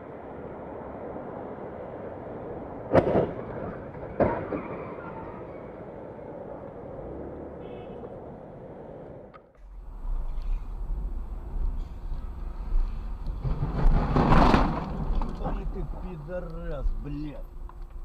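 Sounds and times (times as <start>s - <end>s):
car road and engine noise: 0.0s - 18.0s
low rumble: 9.6s - 18.0s.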